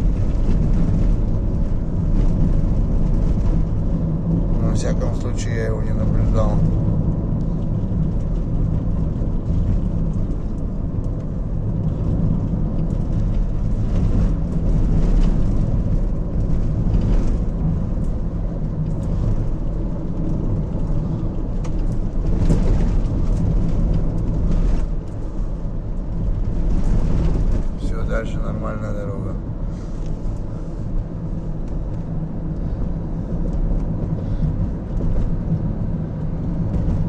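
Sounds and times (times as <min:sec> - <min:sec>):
car engine and tyre rumble: 0:00.0 - 0:37.0
knocks and rattles over bumps: 0:00.0 - 0:37.0.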